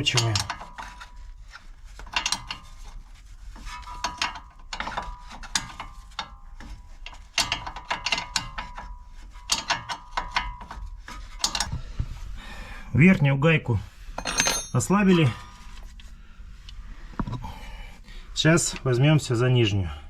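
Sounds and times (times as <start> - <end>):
spanner clicking on metal nut: 2.0 - 2.7, 7.0 - 10.8.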